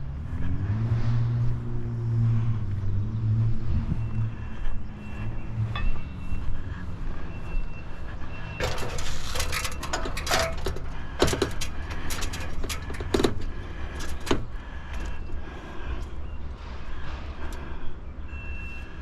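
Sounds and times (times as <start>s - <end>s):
steady low rumble: 0.0s - 18.3s
scraping and knocking: 8.6s - 14.5s.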